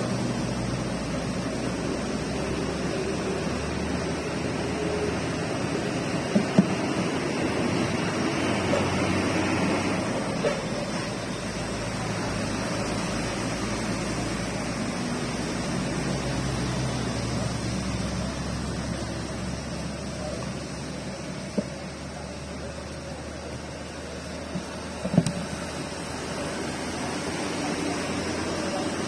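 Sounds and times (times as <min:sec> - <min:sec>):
small knocks: 0:06.3 - 0:07.0, 0:24.5 - 0:25.5.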